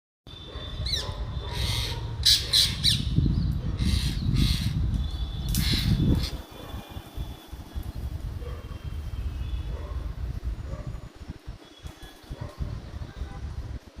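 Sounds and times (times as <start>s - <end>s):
parrots squawking: 1.6s - 3.0s, 3.8s - 4.8s.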